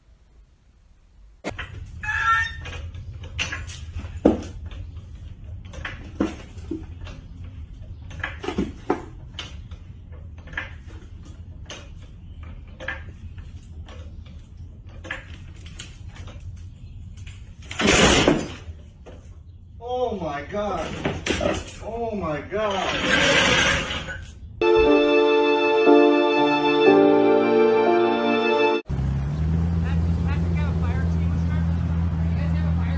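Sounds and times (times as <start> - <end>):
vehicle hum: 28.8 - 32.9.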